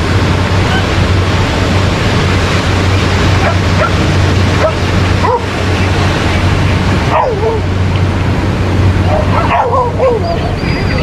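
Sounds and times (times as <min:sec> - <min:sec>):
surf: 0:00.0 - 0:11.0
wind: 0:00.0 - 0:11.0
dog barking and yipping: 0:03.4 - 0:04.0, 0:04.6 - 0:05.5, 0:07.1 - 0:07.6, 0:09.0 - 0:11.0.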